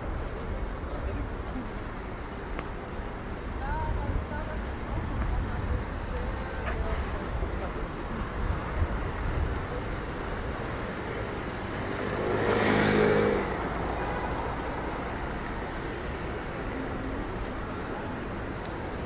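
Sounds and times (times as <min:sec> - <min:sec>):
street traffic: 0:00.0 - 0:19.0
vehicle passing close by: 0:10.9 - 0:16.2.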